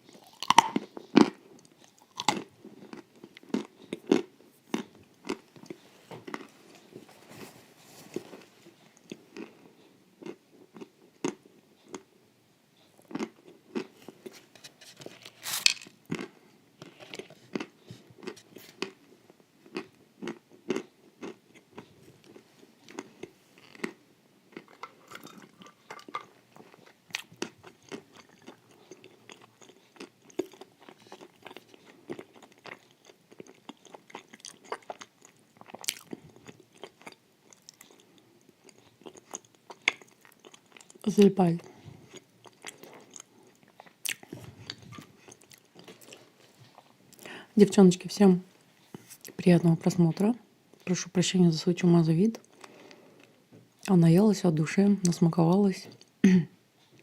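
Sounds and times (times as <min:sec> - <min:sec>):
crunchy wafer chewing: 0:00.0 - 0:07.0, 0:09.0 - 0:12.1, 0:13.0 - 0:47.3.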